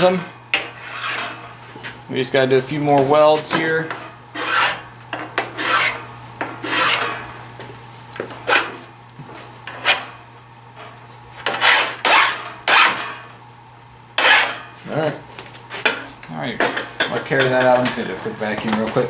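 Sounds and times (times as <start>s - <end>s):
hand file rasping on metal: 0.8s - 1.4s, 4.3s - 4.8s, 5.4s - 6.0s, 6.6s - 7.2s, 11.5s - 13.0s, 14.2s - 14.6s.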